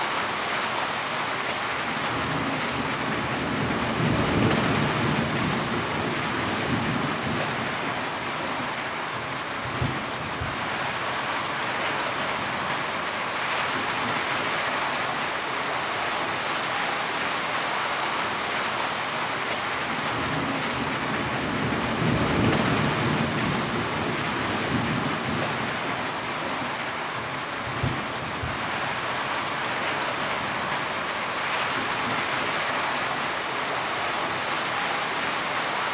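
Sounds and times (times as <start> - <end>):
heavy rain: 0.0 - 35.9.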